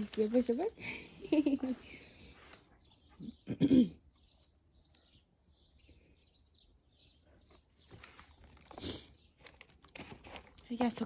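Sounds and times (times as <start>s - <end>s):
bird chirps: 0.0s - 9.6s.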